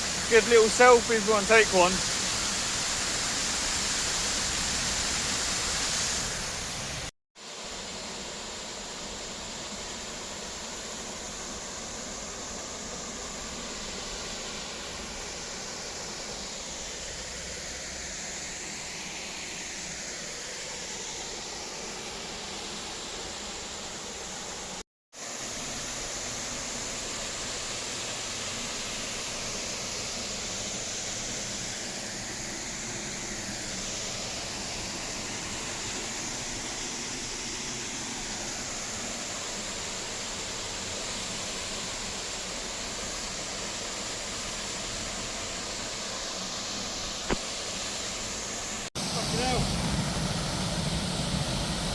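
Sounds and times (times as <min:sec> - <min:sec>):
waterfall rushing: 0:00.0 - 0:07.1, 0:48.2 - 0:51.9.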